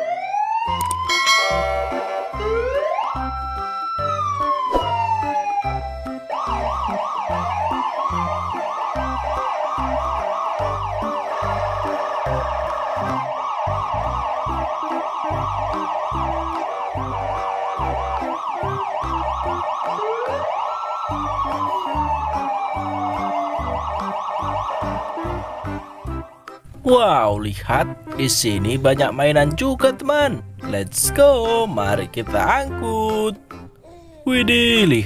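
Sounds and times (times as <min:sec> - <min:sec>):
siren wailing: 0:00.0 - 0:26.2.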